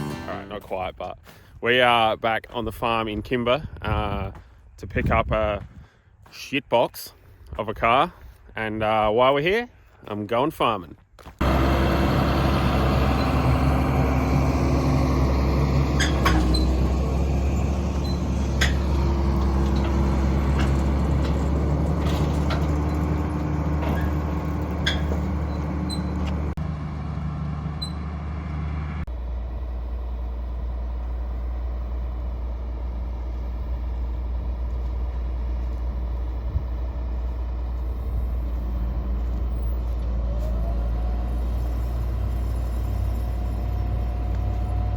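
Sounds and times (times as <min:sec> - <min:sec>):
large diesel engine running: 0:00.0 - 0:00.9, 0:11.3 - 0:44.9.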